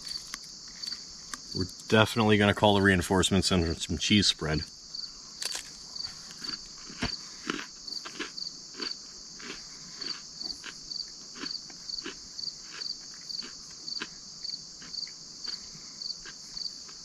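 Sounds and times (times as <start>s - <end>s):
crickets chirping: 0.0s - 17.0s
soft crunches: 5.4s - 10.8s.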